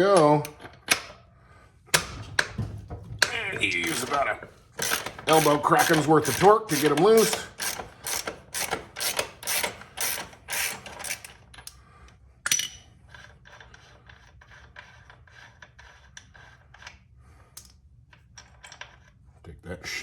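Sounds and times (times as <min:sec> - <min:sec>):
ratchet wrench clicking: 0:03.8 - 0:04.2, 0:04.8 - 0:11.4.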